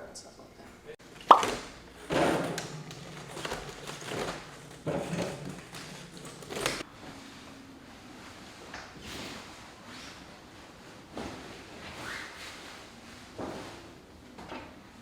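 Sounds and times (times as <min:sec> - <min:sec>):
drink cans and bottles clunking: 0:01.0 - 0:06.8
rustling: 0:01.3 - 0:06.8.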